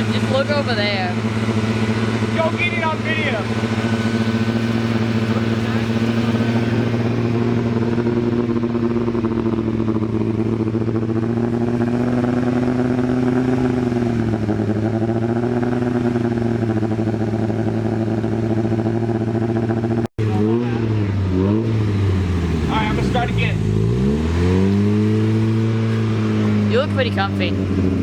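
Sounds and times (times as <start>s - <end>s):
car engine fast idle: 0.0s - 11.3s.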